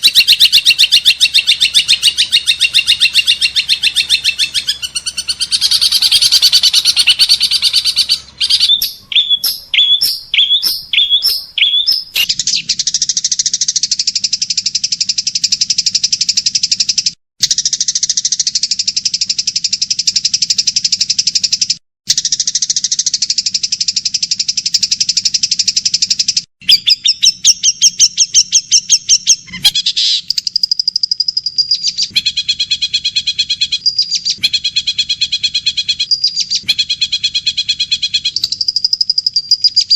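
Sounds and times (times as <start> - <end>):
songbird calls: 0.0 - 12.8
fast buzzing bird trill: 0.0 - 39.9.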